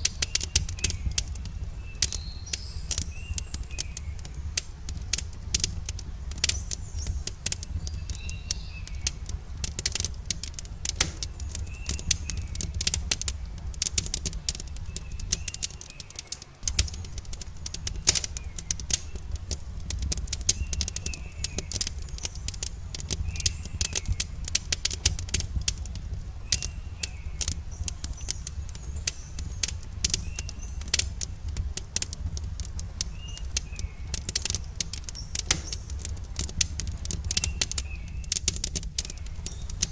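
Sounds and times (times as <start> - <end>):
small bird chirping: 0.0 - 25.4, 26.3 - 31.2, 32.0 - 39.9
campfire crackling and popping: 0.0 - 39.9.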